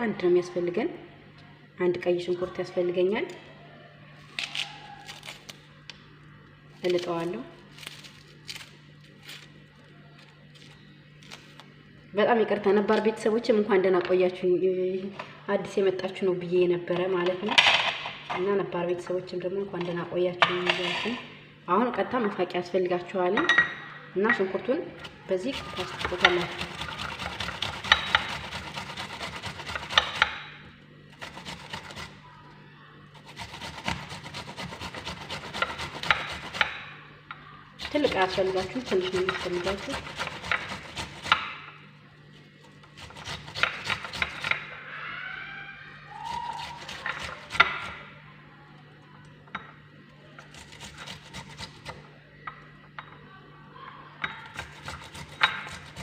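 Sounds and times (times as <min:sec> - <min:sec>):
onion grated on a grater: 0:25.1 - 0:30.5, 0:31.1 - 0:32.2, 0:33.1 - 0:37.0, 0:37.8 - 0:41.6, 0:42.3 - 0:44.8, 0:46.1 - 0:48.1, 0:50.4 - 0:52.0, 0:54.4 - 0:56.0.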